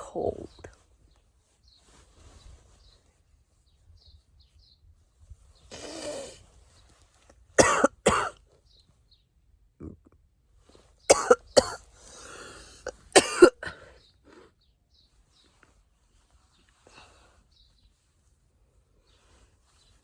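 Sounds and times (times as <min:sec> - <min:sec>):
person coughing: 0:07.6 - 0:08.4, 0:11.1 - 0:11.8, 0:12.9 - 0:13.9
person drawing breath: 0:11.9 - 0:12.9.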